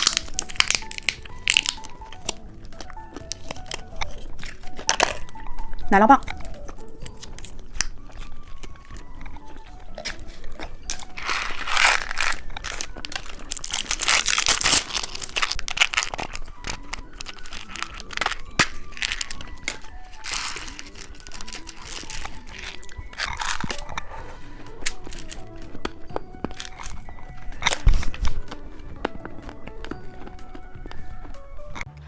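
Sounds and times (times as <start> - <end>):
plastic wrapper crinkling: 0.0 - 31.9.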